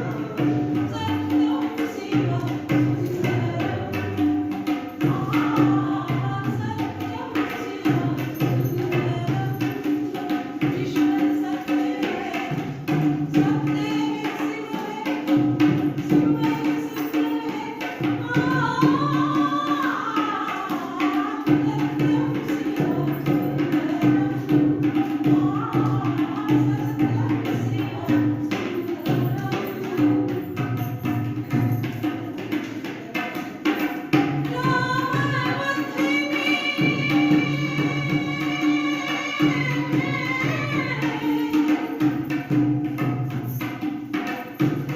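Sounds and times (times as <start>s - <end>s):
person singing: 0.0s - 4.2s, 34.5s - 42.0s
hand percussion beat: 0.0s - 44.9s.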